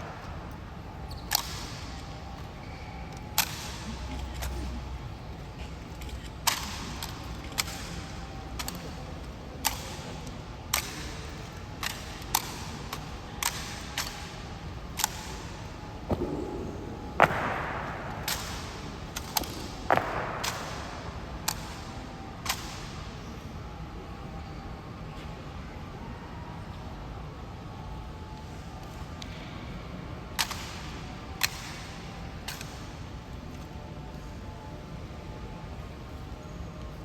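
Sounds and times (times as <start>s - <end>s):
rifle butts striking stone floor: 17.2s - 18.6s, 19.2s - 20.9s.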